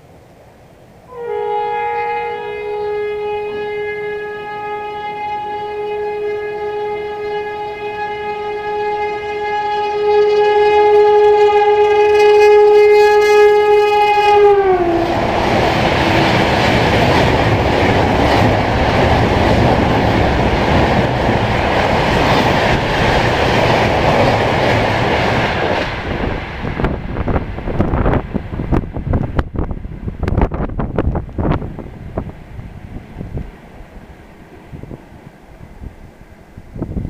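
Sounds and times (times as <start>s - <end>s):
locomotive horn: 1.1s - 21.0s
train coaches rushing and rattling: 14.8s - 35.4s.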